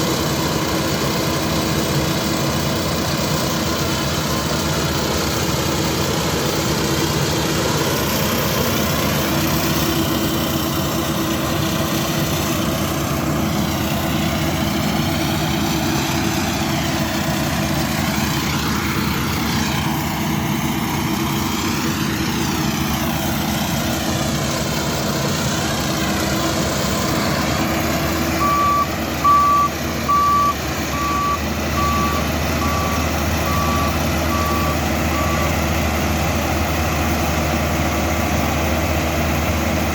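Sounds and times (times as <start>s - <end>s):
combine harvester droning: 0.0s - 39.9s
warning beeper short beeps: 28.4s - 35.5s.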